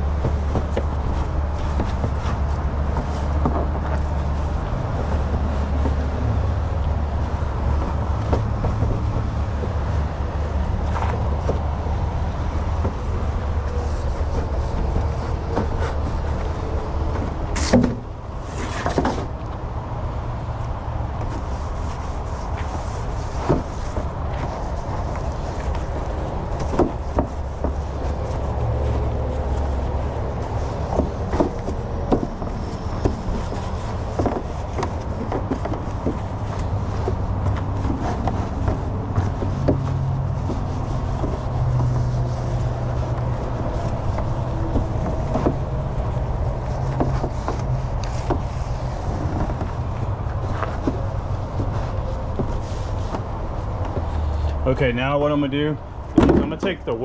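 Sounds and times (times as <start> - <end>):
low engine-like rumble: 0.0 - 57.0
plastic molds tapping and knocking: 56.1 - 56.9.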